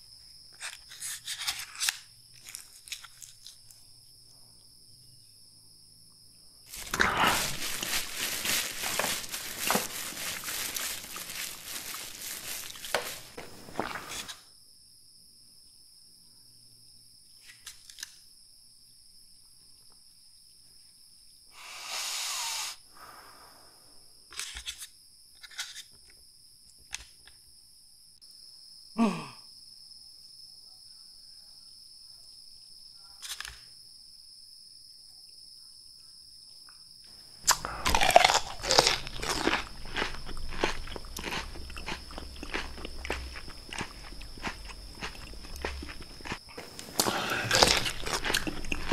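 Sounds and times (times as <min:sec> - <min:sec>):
crunching of bell pepper chewed: 0:00.6 - 0:03.8, 0:06.7 - 0:14.4, 0:37.4 - 0:48.9
rustling: 0:06.7 - 0:14.4.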